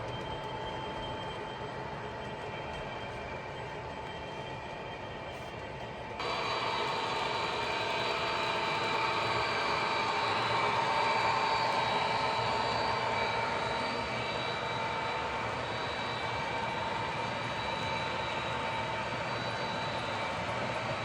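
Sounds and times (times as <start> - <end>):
model train motor whine: 6.2 - 20.3.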